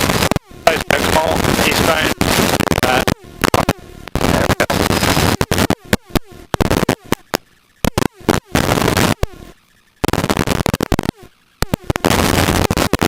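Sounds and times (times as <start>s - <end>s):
helicopter cabin and rotor noise: 0.0s - 13.0s
person speaking on intercom: 0.7s - 2.2s, 2.8s - 3.2s.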